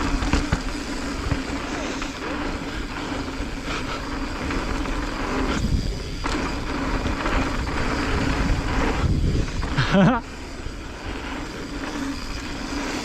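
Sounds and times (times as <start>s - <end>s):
bike rattling: 0.0s - 13.0s
bike tyres on dirt: 0.0s - 13.0s
wind on microphone: 3.6s - 13.0s.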